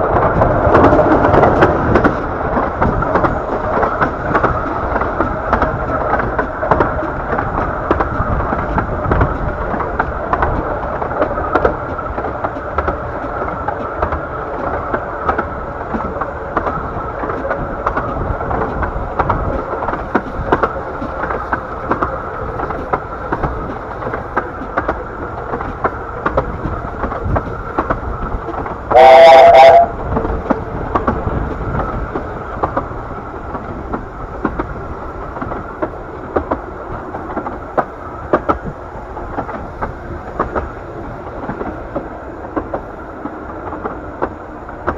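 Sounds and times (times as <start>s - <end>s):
steam train rumbling: 0.0s - 44.9s
wheel clicks on rails: 0.0s - 44.9s
locomotive whistle blast: 28.9s - 30.0s.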